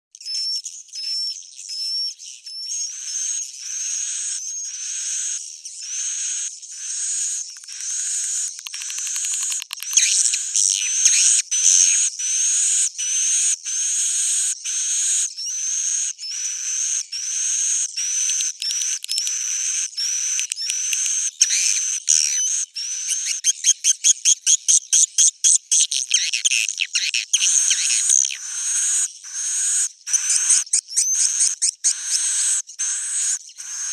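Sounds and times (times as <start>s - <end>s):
swiftlet chirping twitters: 0.2s - 24.5s, 26.2s - 33.9s
fast rattling trills: 6.1s - 12.8s.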